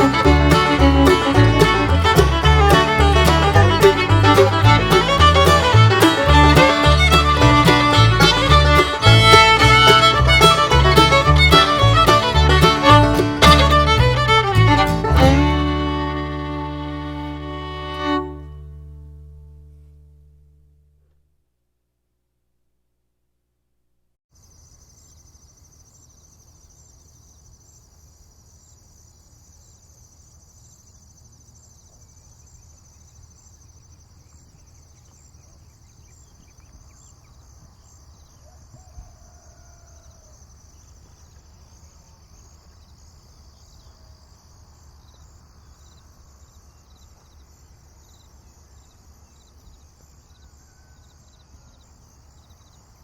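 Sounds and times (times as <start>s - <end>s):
low steady rumble: 0.0s - 21.4s
insects chirring: 24.3s - 53.0s.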